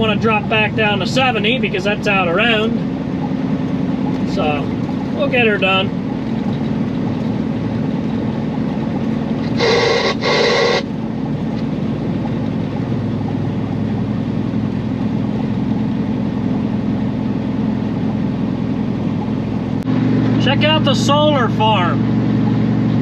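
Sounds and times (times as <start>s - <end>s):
road noise: 0.0s - 23.0s
truck diesel engine drone: 0.0s - 23.0s
short horn-like tones: 9.4s - 11.0s.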